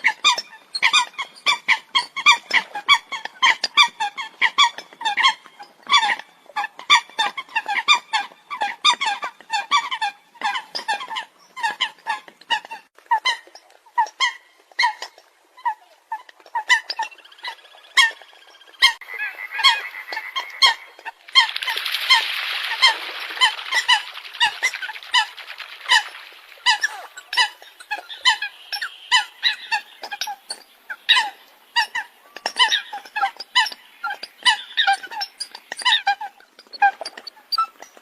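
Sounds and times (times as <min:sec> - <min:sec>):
birds honking calls: 0:17.2 - 0:32.9.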